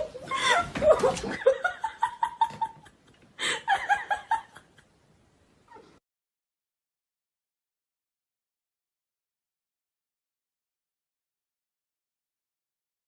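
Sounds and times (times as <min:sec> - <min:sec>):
person laughing: 0:00.0 - 0:04.9.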